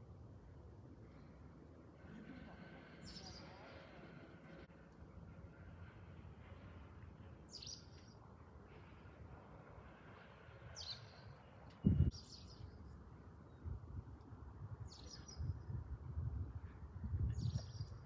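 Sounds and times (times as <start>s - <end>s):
small birds chirping: 2.9s - 4.0s, 7.4s - 8.2s, 10.7s - 13.7s, 14.9s - 15.7s, 17.4s - 18.0s.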